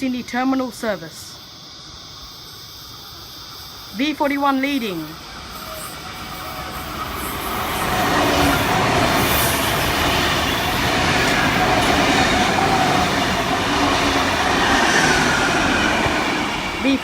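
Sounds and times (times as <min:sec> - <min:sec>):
train wheels rushing on rails: 0:04.6 - 0:17.0.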